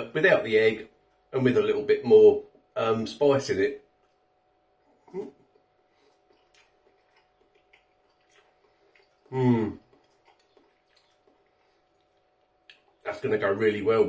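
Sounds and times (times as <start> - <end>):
faint steady hum: 0.0 - 14.0
man chewing: 4.0 - 13.1
man humming mmm: 5.0 - 5.6, 9.2 - 10.0.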